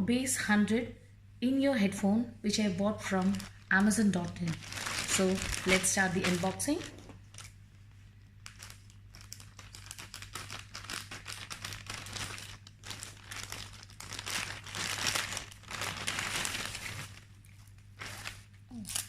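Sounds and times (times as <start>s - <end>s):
steady low hum: 0.0s - 19.0s
packaging crinkling: 3.0s - 18.8s.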